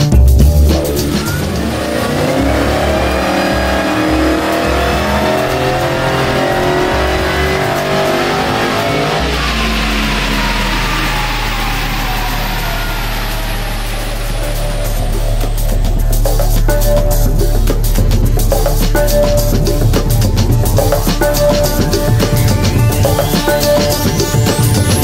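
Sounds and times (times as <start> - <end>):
dyno rollers winding down: 0.6 - 25.0
car engine revving on a dyno: 1.0 - 15.9.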